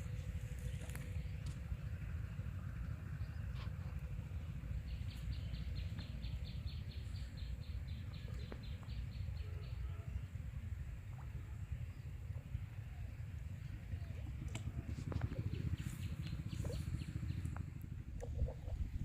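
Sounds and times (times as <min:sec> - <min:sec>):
low rumbling noise: 0:00.0 - 0:19.0.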